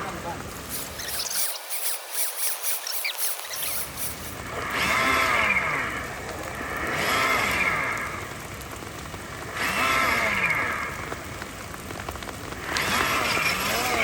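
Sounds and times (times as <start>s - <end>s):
rain hissing: 0.0s - 14.0s
electric motor and gearbox whining: 0.6s - 5.8s, 12.8s - 14.0s.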